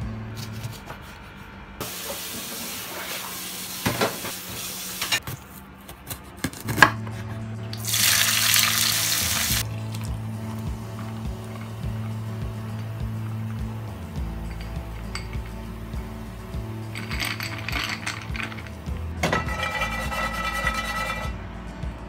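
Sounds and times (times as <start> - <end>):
food sizzling in a pan: 1.8 - 5.2, 7.8 - 9.6.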